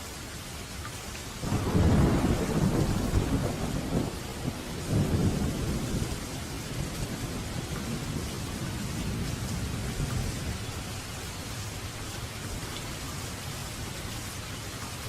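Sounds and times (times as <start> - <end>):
steady rain: 0.0 - 15.0
thunder rumbling: 1.4 - 11.0.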